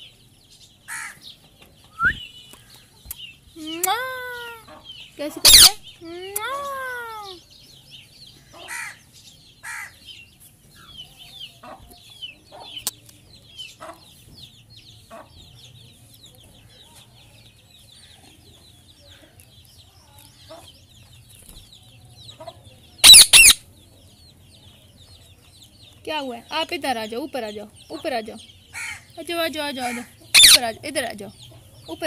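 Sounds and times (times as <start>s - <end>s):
birds cheeping: 0.0s - 32.0s
loud harsh bird squawks: 0.9s - 1.2s, 5.4s - 5.9s, 8.6s - 9.0s, 9.6s - 10.0s, 23.0s - 23.6s, 28.7s - 29.2s, 29.8s - 30.8s.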